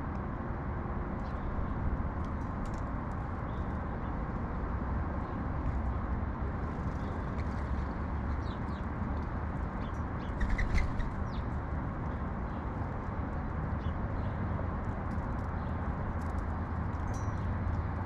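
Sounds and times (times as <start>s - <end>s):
low city rumble: 0.0s - 18.0s
sparrows chirping: 8.3s - 8.9s, 9.7s - 12.8s, 13.8s - 14.5s.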